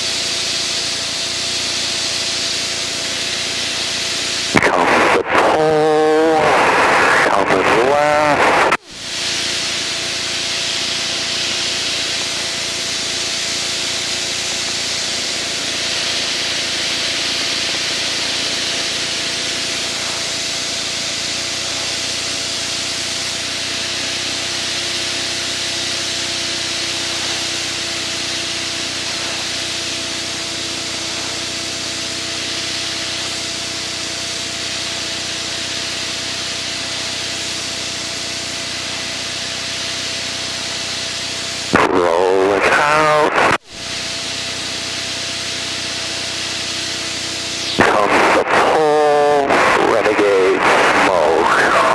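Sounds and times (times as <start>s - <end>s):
aircraft engine hum: 0.0s - 51.9s
airflow hiss: 0.0s - 51.9s
deeper hum: 0.9s - 51.9s.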